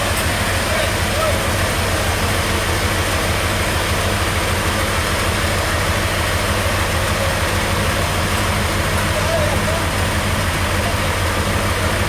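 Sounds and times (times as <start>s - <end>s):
large engine idling: 0.0s - 12.0s.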